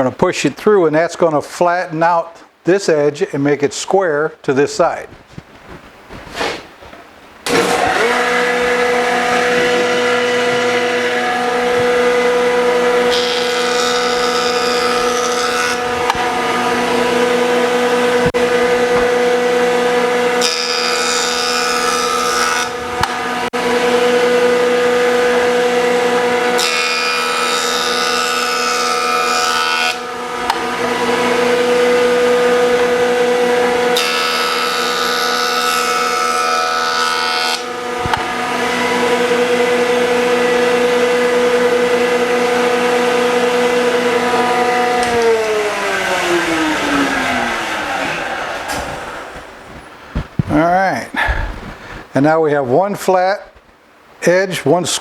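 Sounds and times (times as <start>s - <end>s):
wood shaving cutting noise: 7.4s - 49.8s
jointer motor whine: 7.5s - 49.6s.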